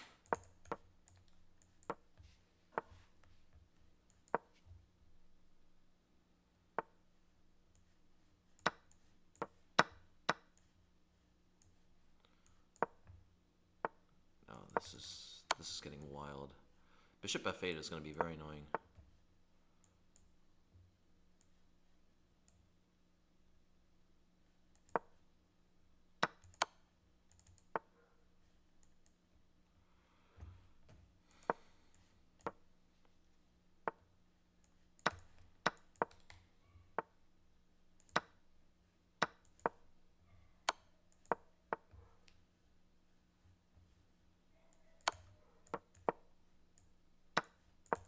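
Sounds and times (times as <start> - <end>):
mouse clicks: 0.0 - 4.6, 8.6 - 10.7, 11.6 - 13.2, 26.2 - 27.9, 31.3 - 33.2, 33.9 - 37.2, 37.9 - 38.5, 39.2 - 40.0, 40.6 - 42.4, 44.6 - 48.0.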